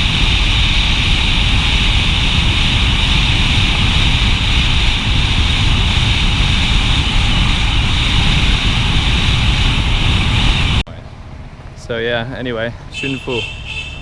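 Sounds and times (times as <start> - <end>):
wind buffeting microphone: 0.0 - 10.8
motorcycle road and engine noise: 0.0 - 14.0.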